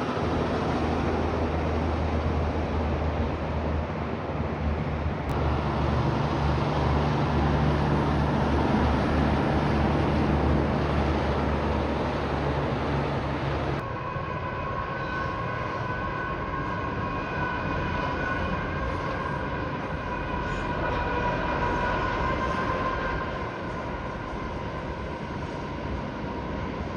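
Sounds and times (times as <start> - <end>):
heavy truck diesel engine: 0.0 - 13.8
tyre and road noise: 0.0 - 13.9.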